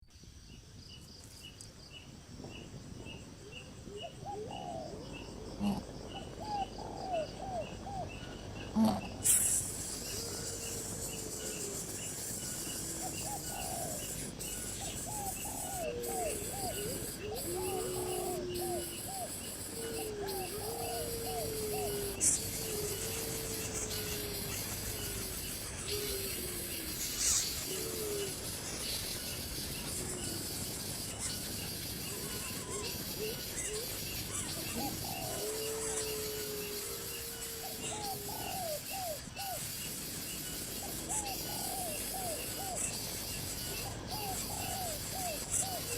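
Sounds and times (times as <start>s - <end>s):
steady background hiss: 0.0s - 45.9s
faint bird calls: 3.6s - 45.9s
high insect chirping: 5.2s - 45.9s
brief hiss: 9.2s - 10.1s.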